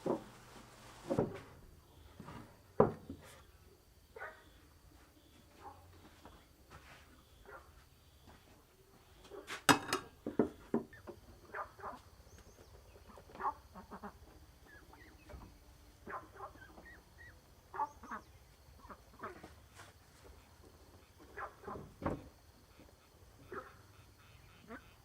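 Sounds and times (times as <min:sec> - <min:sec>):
poultry calling: 0:16.0 - 0:19.5, 0:22.7 - 0:25.0.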